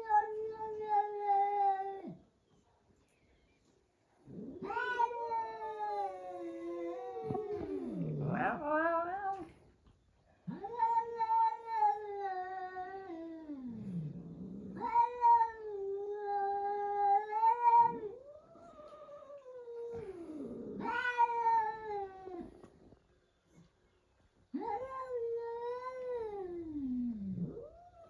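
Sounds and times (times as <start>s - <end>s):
cat yowling: 4.4s - 9.5s, 14.7s - 20.1s, 20.7s - 22.5s.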